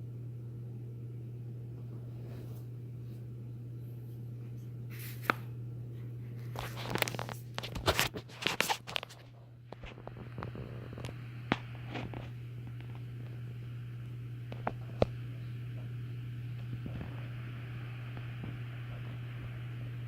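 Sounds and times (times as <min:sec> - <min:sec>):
ceiling fan motor humming: 0:00.0 - 0:20.0
scraping rustling handling noises: 0:01.8 - 0:03.3, 0:06.3 - 0:09.9.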